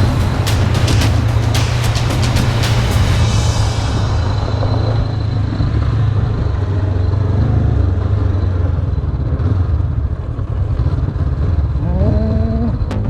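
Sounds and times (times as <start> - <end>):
motorcycle engine running: 0.0 - 3.5.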